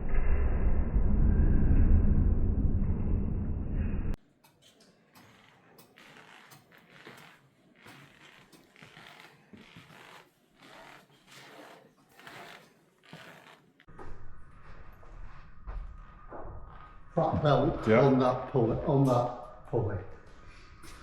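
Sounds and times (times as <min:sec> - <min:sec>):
low hum: 0:00.0 - 0:04.2, 0:13.9 - 0:21.0
rhythmic mechanical swishing and creaking: 0:04.1 - 0:21.0.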